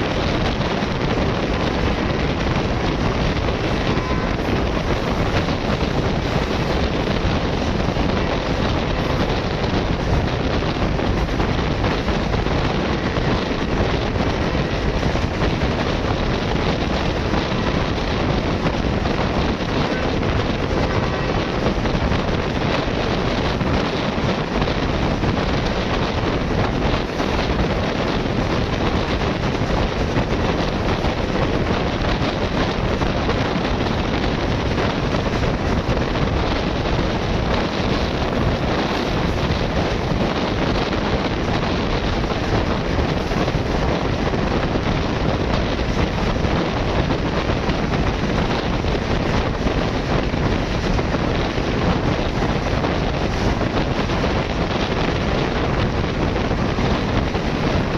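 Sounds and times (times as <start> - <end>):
fast train roaring: 0.0 - 57.9
wind buffeting microphone: 0.0 - 57.9.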